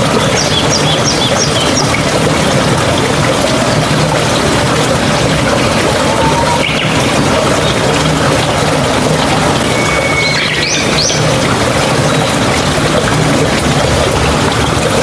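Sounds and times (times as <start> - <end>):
mountain stream running: 0.0 - 15.0
bird calling short high notes: 9.7 - 10.9.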